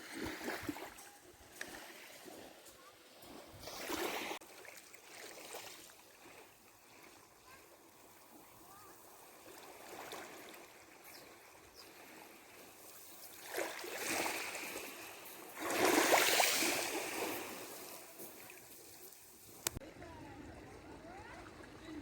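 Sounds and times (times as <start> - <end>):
waves washing against shore: 8.7 - 19.8.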